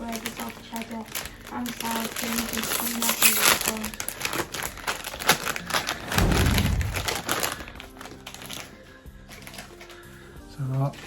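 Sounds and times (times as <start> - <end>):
foil crisp bag crinkling: 0.0 - 6.1
faint background music: 0.0 - 11.0
low thud: 5.9 - 7.8.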